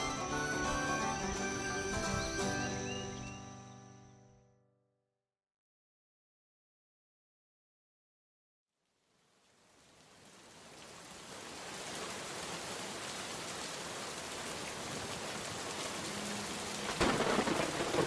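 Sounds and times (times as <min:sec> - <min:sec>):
steady rain falling: 0:08.9 - 0:18.0
loud thunderclap: 0:16.9 - 0:18.0.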